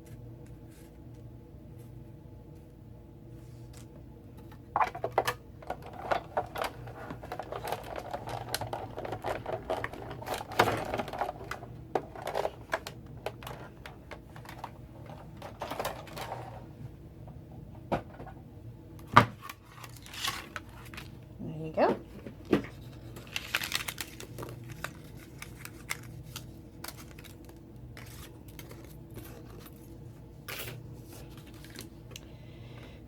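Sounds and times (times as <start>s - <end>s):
paper rustling: 5.8s - 16.6s, 19.4s - 21.2s, 22.4s - 32.0s.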